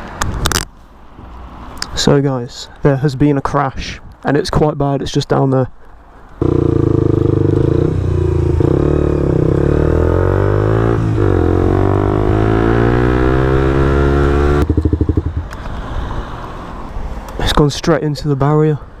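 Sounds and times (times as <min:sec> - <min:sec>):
motorcycle engine under throttle: 0:06.4 - 0:15.6.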